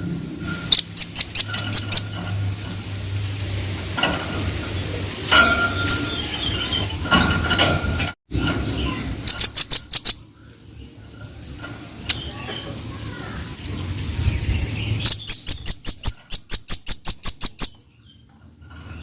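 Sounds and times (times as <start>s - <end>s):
bird chipping calls: 0.5s - 2.8s, 8.8s - 10.6s, 11.4s - 18.3s.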